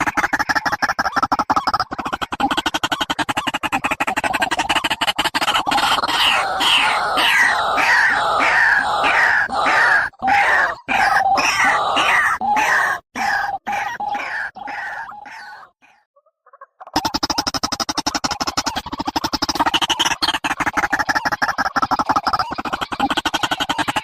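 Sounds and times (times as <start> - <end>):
bird rattling trill: 0.0 - 11.7, 16.9 - 24.0
repeated downslurred bird calls: 0.0 - 24.0.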